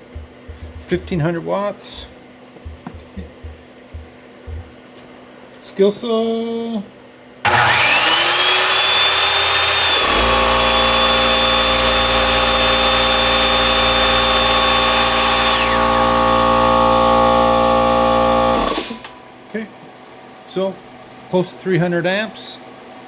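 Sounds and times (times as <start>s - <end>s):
circular saw running: 7.5s - 19.2s.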